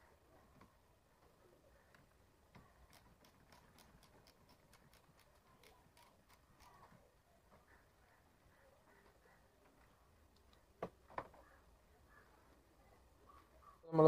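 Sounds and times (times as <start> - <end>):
ratchet wrench clicking: 2.9 - 6.8.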